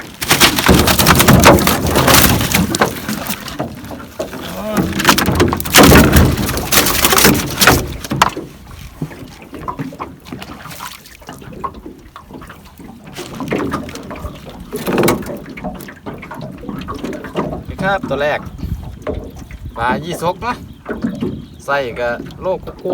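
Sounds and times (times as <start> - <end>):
knocks and rustles of handling: 0.0 - 11.4
water splashing against boat: 0.0 - 22.9.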